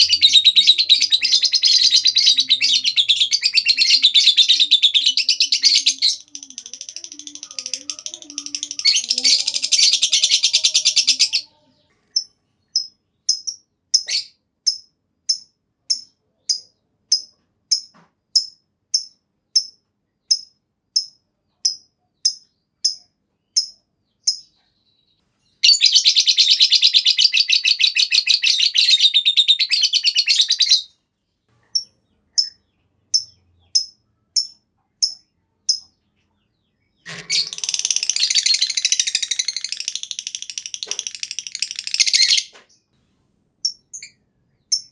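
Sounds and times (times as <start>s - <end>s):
lovebird chattering trill: 0.0s - 24.5s, 25.6s - 30.9s, 37.0s - 42.6s
lovebird chirps: 0.0s - 30.9s, 31.6s - 42.9s, 43.6s - 44.9s.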